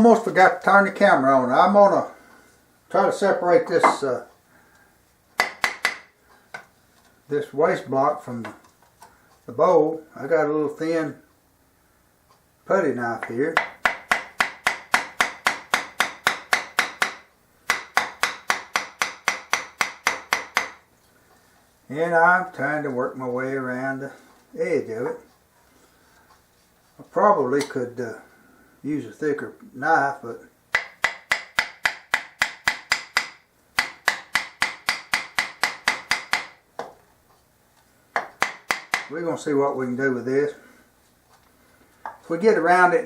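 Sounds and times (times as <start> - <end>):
hammer tapping metal putty knife: 30.7 - 37.0.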